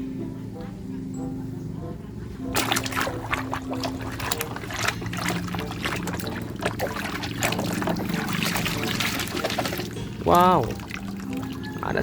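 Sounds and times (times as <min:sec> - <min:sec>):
water trickling and splashing: 0:02.5 - 0:12.0.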